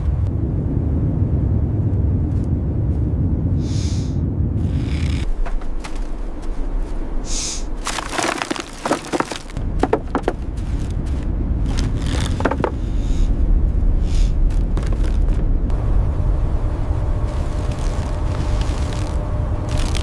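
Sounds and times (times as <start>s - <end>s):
low rumble: 0.0s - 20.0s
sharp cracks and crunching: 7.8s - 12.8s, 14.4s - 15.5s, 17.4s - 20.0s.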